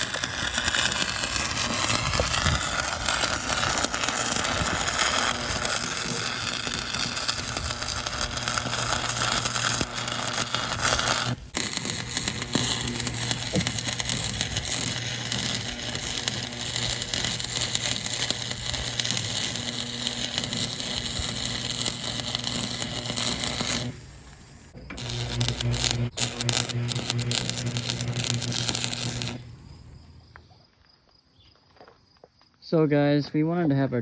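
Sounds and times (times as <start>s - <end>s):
welder crackling sizzle: 0.0s - 30.0s
low electrical hum: 0.0s - 30.4s.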